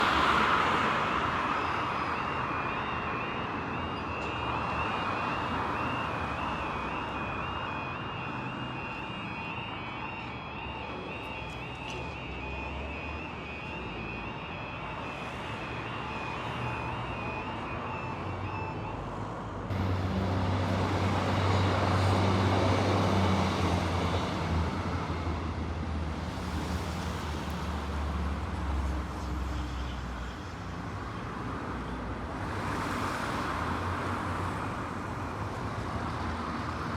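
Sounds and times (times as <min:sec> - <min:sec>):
road vehicle passing: 0:00.0 - 0:29.2
train engine drone and rolling: 0:00.0 - 0:31.5.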